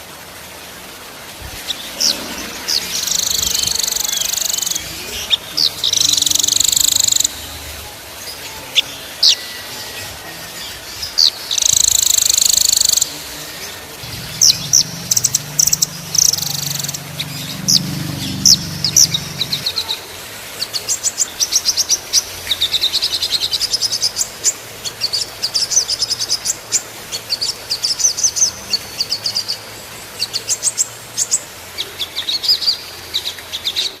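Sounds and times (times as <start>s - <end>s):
songbirds chirping and trilling: 1.2s - 20.0s, 20.6s - 34.0s
faint low hum: 13.5s - 19.9s.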